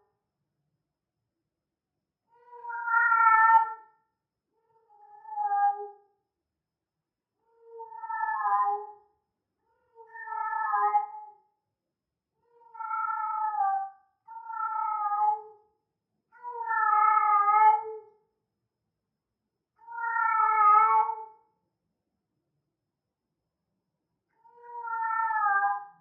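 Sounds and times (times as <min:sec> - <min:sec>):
cat meowing: 0:02.5 - 0:03.8, 0:19.9 - 0:21.1, 0:24.5 - 0:25.8.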